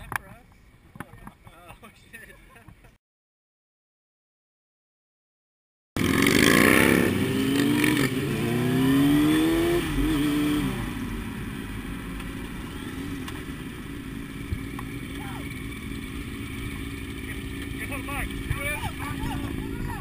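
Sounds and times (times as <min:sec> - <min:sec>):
motorcycle engine revving: 0:06.0 - 0:20.0.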